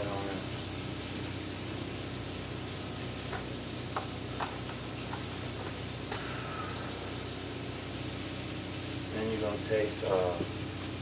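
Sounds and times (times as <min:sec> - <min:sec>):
steak sizzling in skillet: 0:00.0 - 0:11.0.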